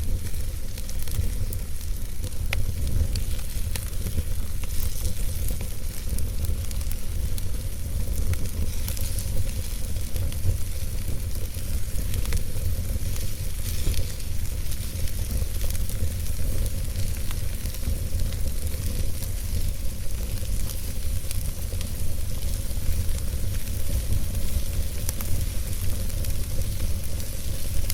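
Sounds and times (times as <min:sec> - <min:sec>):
fire crackling in a fireplace: 0:00.0 - 0:27.9.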